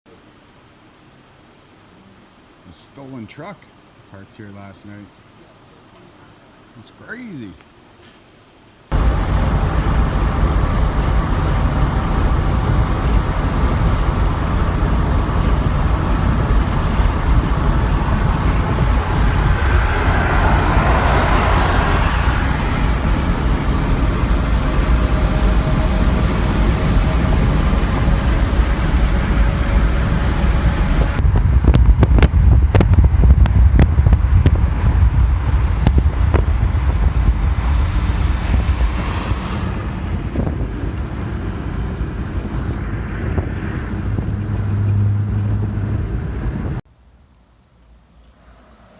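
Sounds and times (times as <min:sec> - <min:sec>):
vehicle road and engine noise: 0:07.7 - 0:47.0, 0:47.6 - 0:48.9
wind buffeting microphone: 0:08.9 - 0:46.8.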